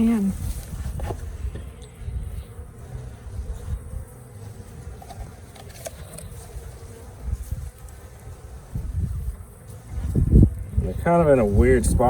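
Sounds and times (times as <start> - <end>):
bee swarm buzzing: 0.0 - 12.0.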